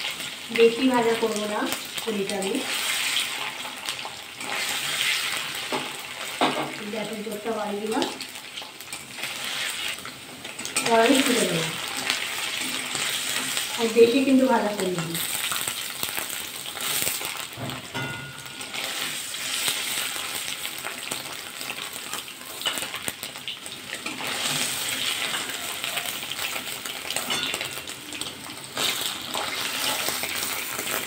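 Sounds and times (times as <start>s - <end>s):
cheese sizzling in oil: 0.0s - 31.0s
metal spatula clicking and scraping: 22.5s - 23.0s.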